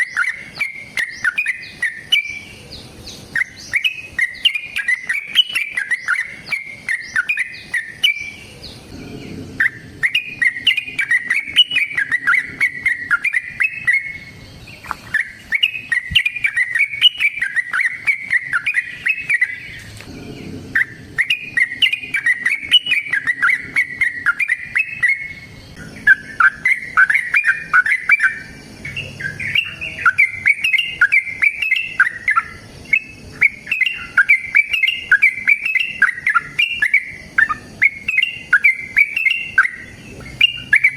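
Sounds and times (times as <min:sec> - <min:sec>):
bird singing chattering phrases: 0:00.0 - 0:40.9.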